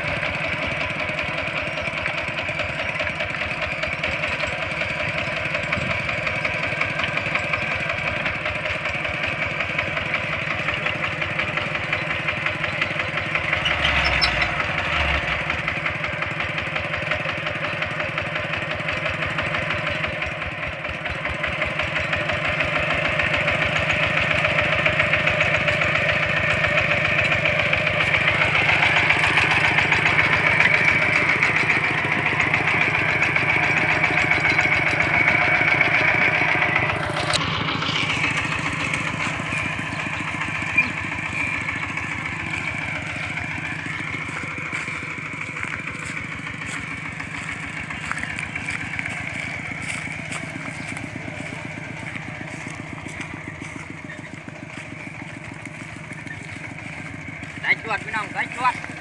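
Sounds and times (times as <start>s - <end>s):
diesel engine chugging: 0.0s - 59.0s.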